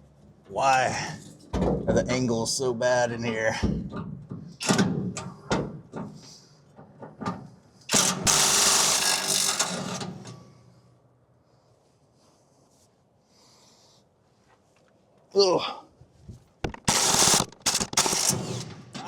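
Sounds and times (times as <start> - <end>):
power tool rattling: 7.9 - 10.3, 16.6 - 19.0
sharp metal knocks: 16.6 - 19.0.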